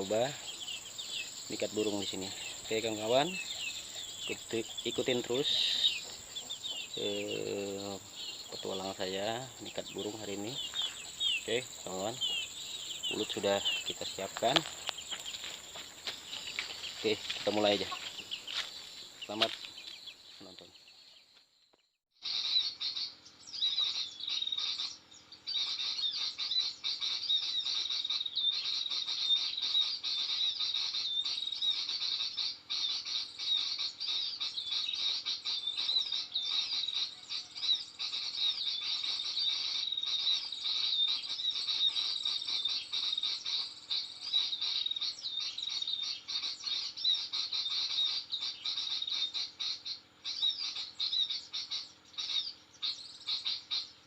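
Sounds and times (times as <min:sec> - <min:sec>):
small birds twittering: 0:00.0 - 0:54.0.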